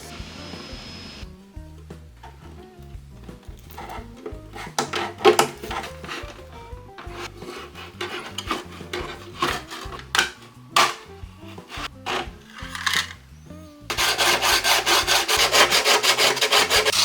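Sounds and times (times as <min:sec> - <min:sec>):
background music: 0:00.0 - 0:17.0
hand tool scraping: 0:03.5 - 0:13.3, 0:13.9 - 0:17.0.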